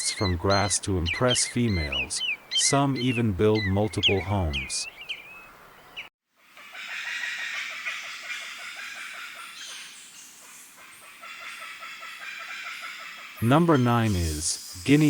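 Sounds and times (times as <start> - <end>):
rapid clucking notes: 0.0 - 4.8
birds chattering: 0.0 - 6.1, 6.7 - 15.0.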